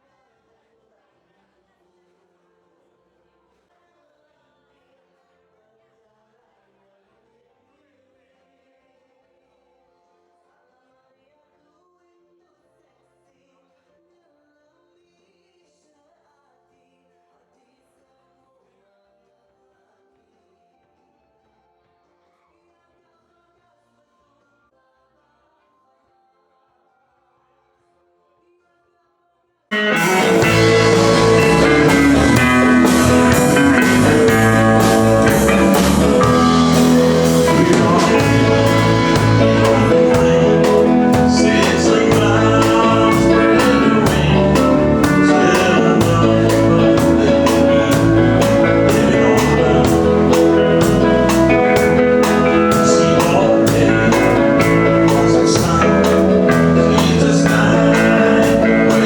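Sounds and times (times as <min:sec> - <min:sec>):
bass guitar: 0:29.7 - 0:59.0
drums with steady beat: 0:29.7 - 0:59.0
electric guitar: 0:29.7 - 0:59.0.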